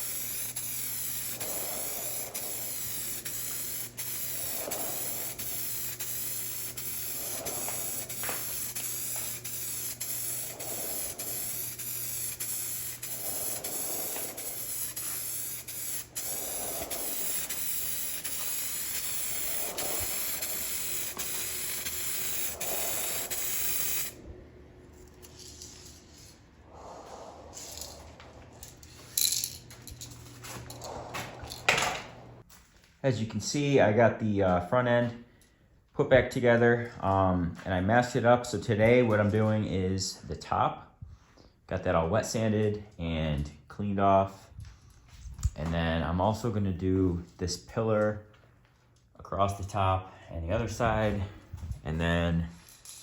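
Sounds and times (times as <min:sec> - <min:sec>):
aerosol paint spraying hiss: 0:00.0 - 0:24.2.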